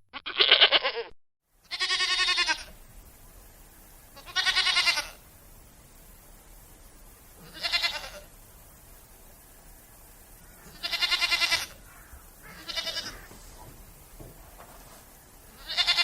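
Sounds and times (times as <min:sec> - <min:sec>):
goats bleating: 0:00.1 - 0:01.1, 0:01.7 - 0:02.7, 0:04.2 - 0:05.2, 0:07.4 - 0:08.3, 0:10.6 - 0:11.8, 0:12.4 - 0:13.4, 0:15.6 - 0:16.0.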